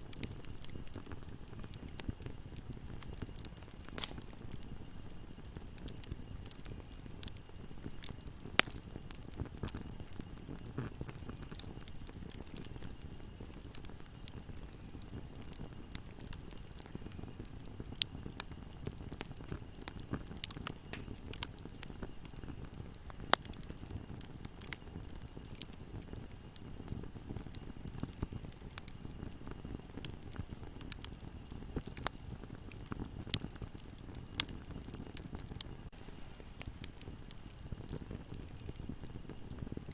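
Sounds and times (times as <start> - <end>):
bonfire flames rumbling: 0.0 - 39.9
fire crackling and popping: 0.0 - 39.9.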